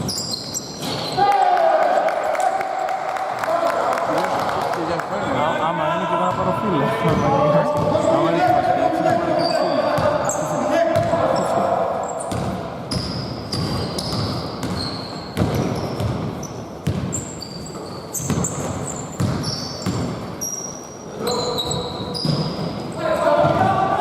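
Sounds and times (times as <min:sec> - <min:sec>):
sneaker squeaks: 0:00.0 - 0:01.2, 0:07.0 - 0:23.6
basketball bouncing on floor: 0:10.9 - 0:11.2, 0:12.3 - 0:17.2, 0:18.2 - 0:20.2
players shouting: 0:23.0 - 0:24.0.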